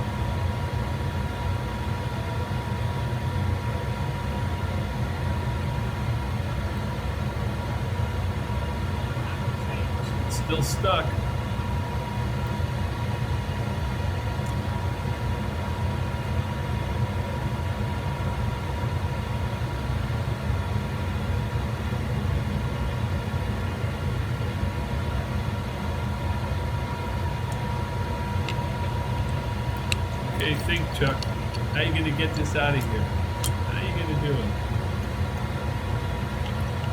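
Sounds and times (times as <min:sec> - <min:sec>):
low machinery hum: 0:00.0 - 0:36.9
faint high whine: 0:24.4 - 0:36.9.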